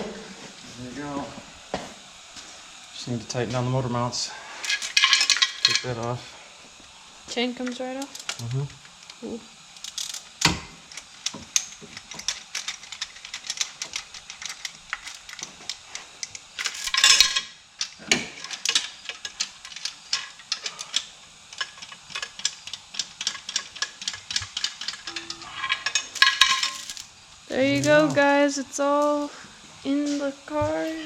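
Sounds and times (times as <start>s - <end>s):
ratchet wrench clicking: 4.6s - 6.0s, 7.6s - 27.1s.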